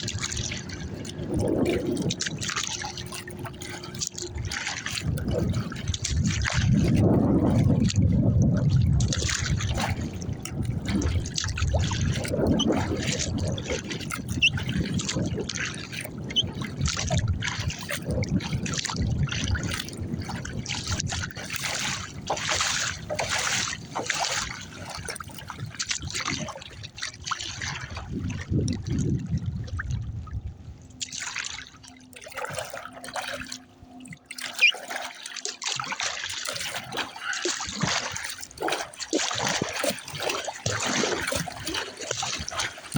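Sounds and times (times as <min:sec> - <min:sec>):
low wind rumble: 0:00.0 - 0:31.0
paddle strokes splashing: 0:00.0 - 0:42.9
water dripping off paddle: 0:31.0 - 0:42.9.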